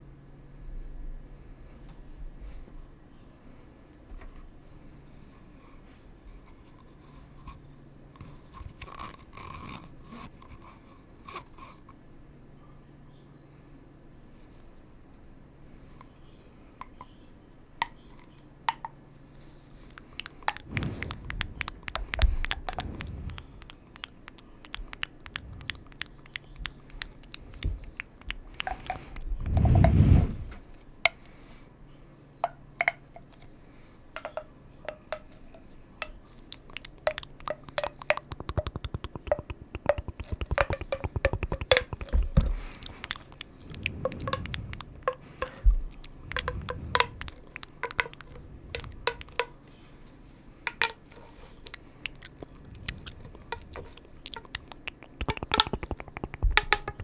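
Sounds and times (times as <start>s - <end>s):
soft squishy crunchy noises: 19.4s - 29.5s, 36.3s - 50.2s, 51.0s - 57.0s
crisp clicks: 19.9s - 29.6s, 36.5s - 49.5s, 51.7s - 57.0s
low whoosh: 20.6s - 23.8s, 29.2s - 30.6s, 43.5s - 47.6s.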